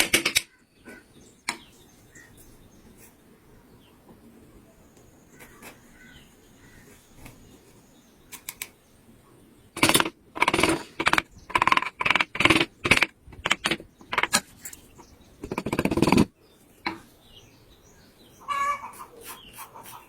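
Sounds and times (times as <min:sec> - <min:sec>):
carving tool scraping wood: 0:15.4 - 0:16.3.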